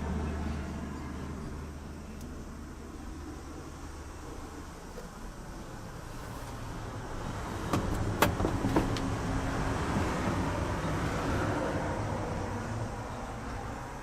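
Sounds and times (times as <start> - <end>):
sharp clicks and knocks: 7.7 - 9.1.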